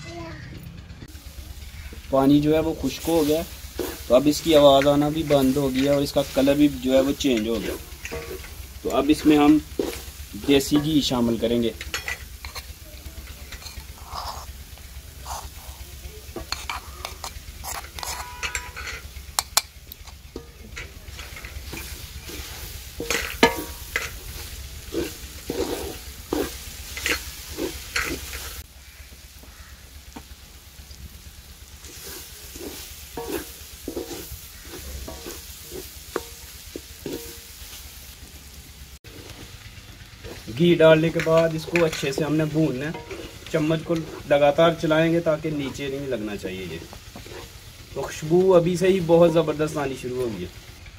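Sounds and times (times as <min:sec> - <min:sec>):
carrots sizzling in ghee: 0:01.1 - 0:50.9
wooden spoon scraping pan: 0:02.8 - 0:12.7, 0:16.3 - 0:19.2, 0:20.4 - 0:28.6, 0:31.8 - 0:37.4, 0:40.2 - 0:46.0, 0:46.8 - 0:48.2.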